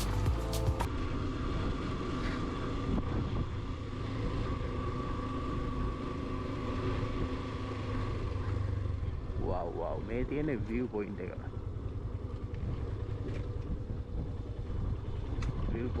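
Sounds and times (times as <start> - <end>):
motorcycle engine rumble: 0.0 - 16.0
wind noise on microphone: 2.8 - 4.4, 12.6 - 16.0.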